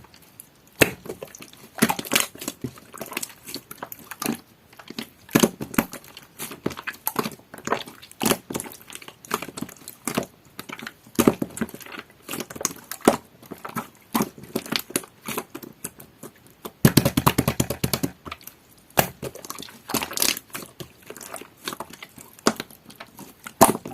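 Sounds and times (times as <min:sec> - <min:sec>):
slime squished by hand: 0:00.2 - 0:23.9
rapid crackling pops: 0:16.8 - 0:18.3.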